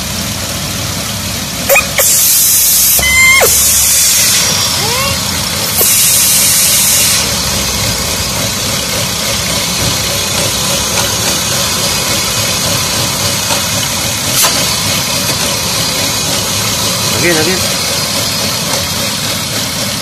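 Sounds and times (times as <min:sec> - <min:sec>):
car engine idling: 0:00.0 - 0:20.0
loud hiss: 0:01.7 - 0:07.8.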